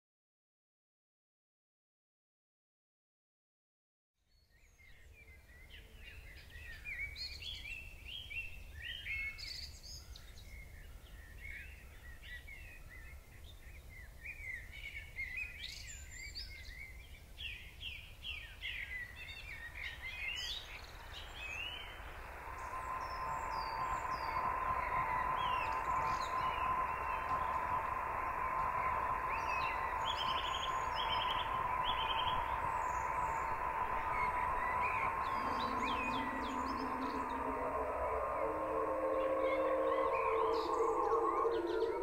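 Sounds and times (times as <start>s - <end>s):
songbirds singing and chirping: 4.3s - 42.0s
steady hiss: 20.5s - 38.1s
low steady rumble: 20.5s - 42.0s
steady tone: 20.5s - 42.0s.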